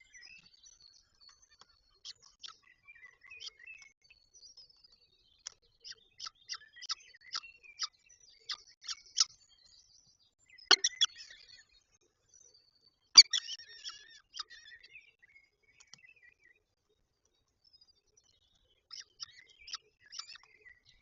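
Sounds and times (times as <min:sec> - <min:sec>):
falcon calling: 0:10.7 - 0:11.1.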